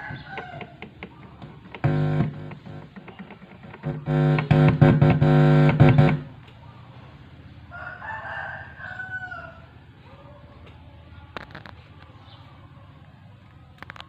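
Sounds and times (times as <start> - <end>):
rooster crowing: 0.0 - 0.9, 7.7 - 9.8
loud amplifier speaker buzz: 1.0 - 6.5.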